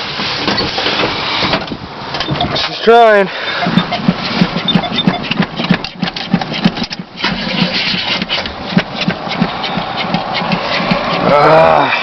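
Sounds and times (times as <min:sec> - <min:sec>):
car engine struggling on cold start: 0:00.0 - 0:12.0.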